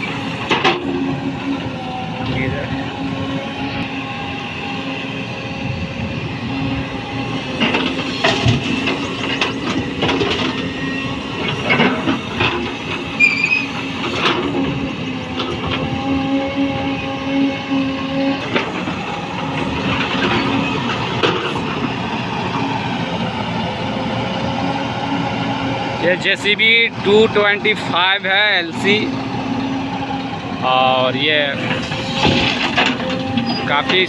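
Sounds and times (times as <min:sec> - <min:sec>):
excavator engine running: 0:00.0 - 0:34.0
metallic clanks and knocks: 0:31.7 - 0:34.0.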